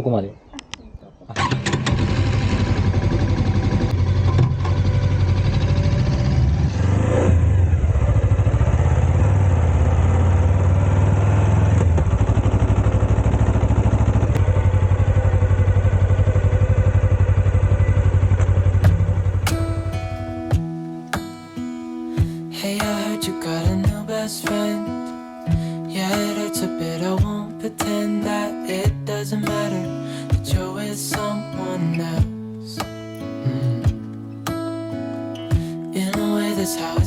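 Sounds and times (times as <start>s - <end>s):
motorcycle engine running: 1.8s - 20.6s.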